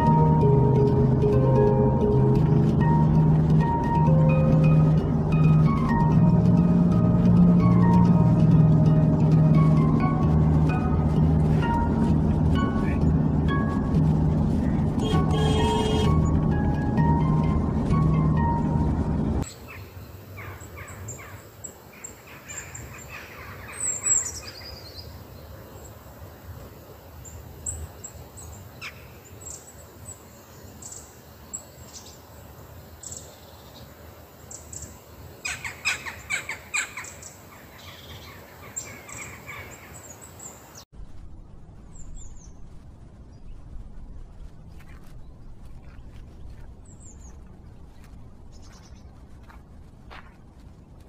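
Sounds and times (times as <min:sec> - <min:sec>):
low outdoor background: 0:00.0 - 0:51.0
birds chirping and calling: 0:34.5 - 0:40.8.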